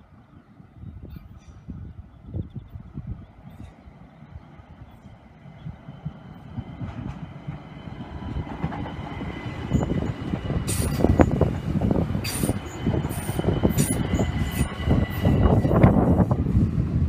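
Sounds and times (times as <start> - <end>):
electric train passing: 0.0 - 17.0
sharp wheel and rail noises: 6.1 - 16.4.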